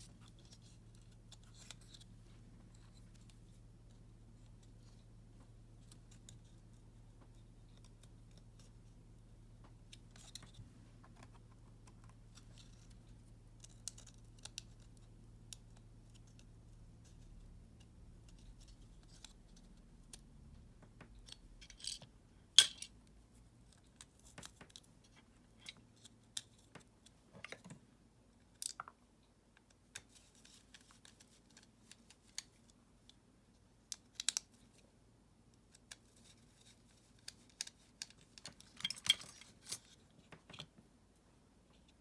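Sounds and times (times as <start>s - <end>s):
small clicks of hand work: 17.8s - 27.9s, 33.9s - 34.8s, 35.5s - 40.8s.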